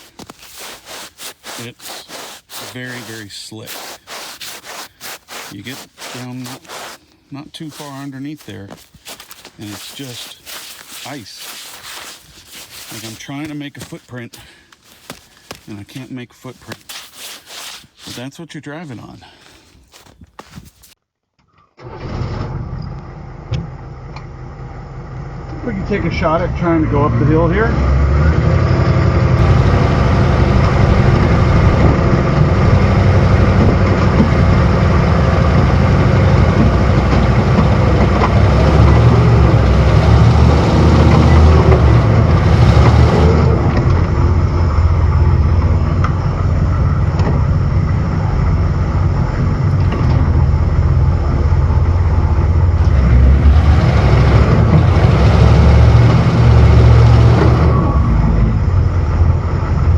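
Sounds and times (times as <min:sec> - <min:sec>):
tyres slipping in snow and ice: 0:00.0 - 0:21.0, 0:37.2 - 0:43.5.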